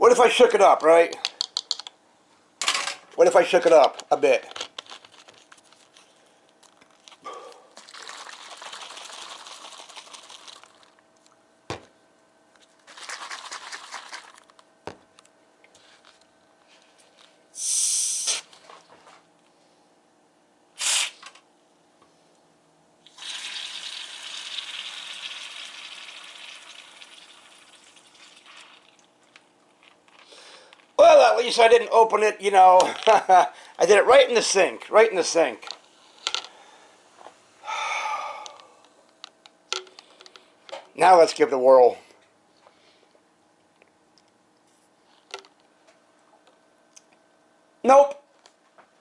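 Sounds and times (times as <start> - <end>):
soda fizzing: 7.8 - 11.0, 12.9 - 14.5, 23.0 - 29.3
short sharp hisses: 17.6 - 18.6, 20.8 - 21.4.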